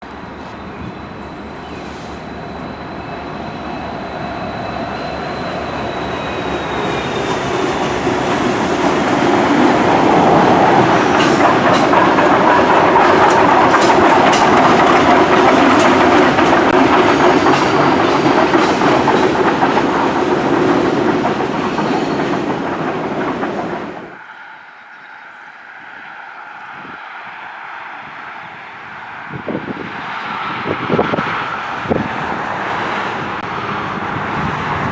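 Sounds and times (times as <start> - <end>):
train wheels clattering over rail joints: 7.1 - 24.1.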